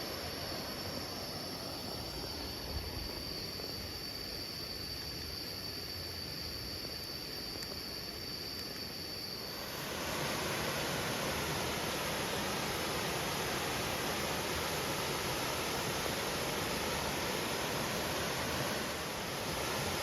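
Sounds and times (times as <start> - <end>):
high-pitched insect drone: 0.0 - 20.0
rushing water: 9.4 - 20.0.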